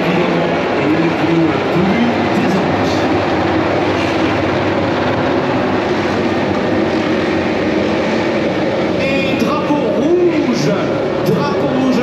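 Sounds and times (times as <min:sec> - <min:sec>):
racing motorcycle engines: 0:00.0 - 0:12.0.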